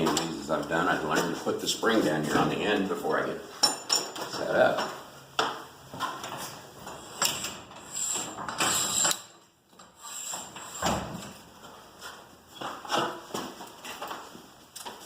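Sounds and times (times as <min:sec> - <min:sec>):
metal hardware clinking: 0:03.6 - 0:04.4.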